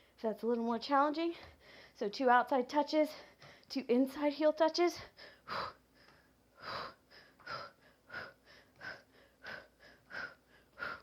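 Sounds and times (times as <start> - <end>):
woman breathing hard: 1.4 - 2.0, 5.0 - 11.0.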